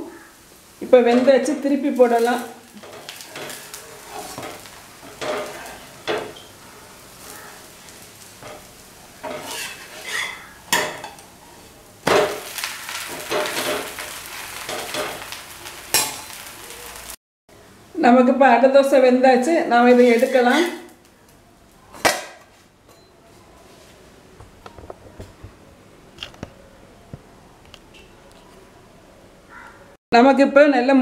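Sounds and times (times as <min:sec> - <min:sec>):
batter sizzling on a griddle: 0:00.1 - 0:17.2, 0:19.8 - 0:21.8
metal spatula scraping griddle: 0:02.2 - 0:06.6, 0:07.2 - 0:16.4, 0:19.9 - 0:20.9.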